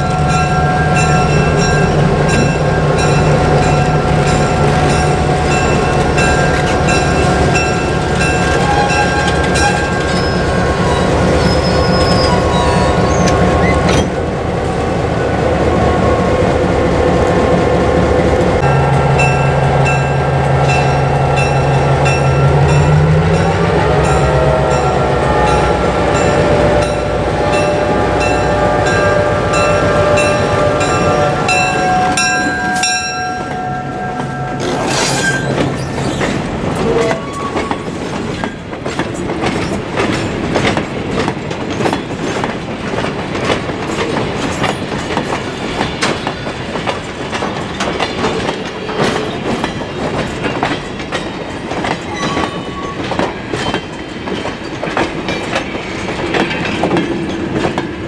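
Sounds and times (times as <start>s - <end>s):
locomotive horn chord: 23.8s - 32.4s
train wheels clattering over rail joints: 35.3s - 58.0s.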